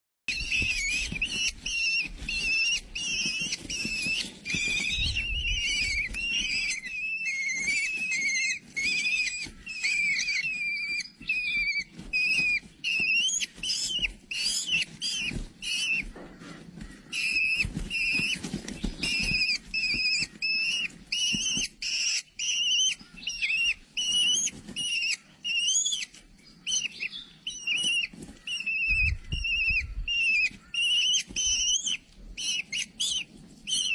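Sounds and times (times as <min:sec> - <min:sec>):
bird chirping: 0:00.3 - 0:33.9.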